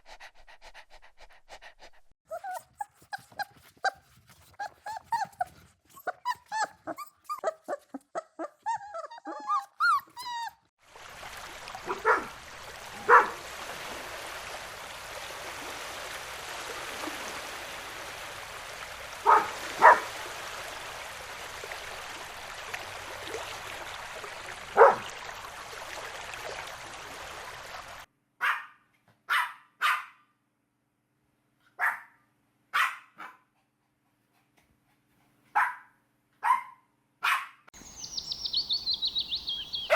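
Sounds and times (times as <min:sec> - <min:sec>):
puppies whining and yipping: 0:02.3 - 0:10.7
sharp dog barks: 0:11.8 - 0:12.3, 0:13.0 - 0:13.4, 0:19.2 - 0:20.1, 0:24.8 - 0:25.1, 0:28.4 - 0:30.2, 0:31.8 - 0:32.1, 0:32.8 - 0:33.4, 0:35.6 - 0:37.6.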